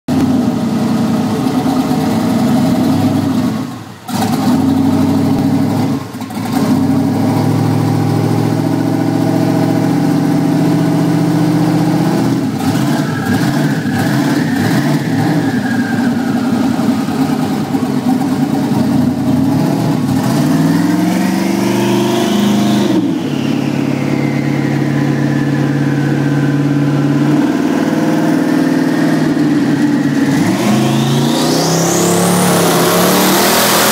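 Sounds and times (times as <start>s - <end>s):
engine revving on a dyno: 0.1s - 33.9s
high whine: 11.2s - 33.9s.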